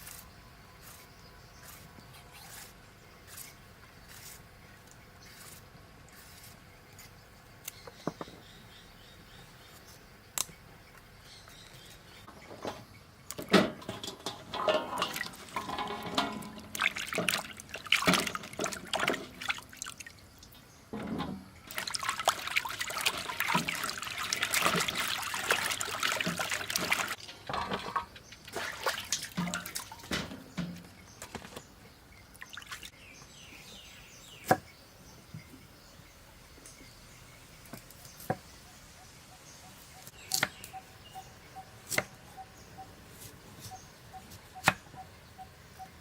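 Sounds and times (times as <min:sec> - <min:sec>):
kitchen knocks and clatter: 0:12.3 - 0:17.4, 0:20.9 - 0:21.4, 0:26.2 - 0:28.2, 0:29.2 - 0:31.5
water pouring and splashing: 0:13.6 - 0:30.9, 0:32.4 - 0:33.0.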